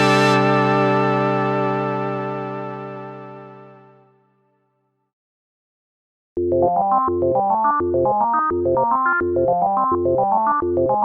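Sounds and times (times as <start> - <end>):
synthesizer note: 0.0 - 4.0.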